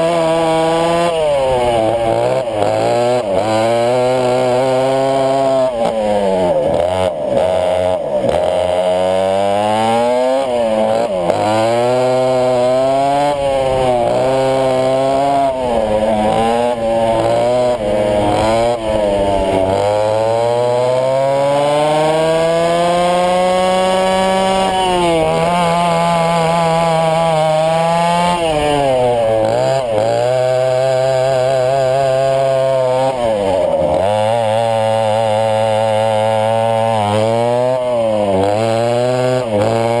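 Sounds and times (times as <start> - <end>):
kart engines revving: 0.0 - 40.0.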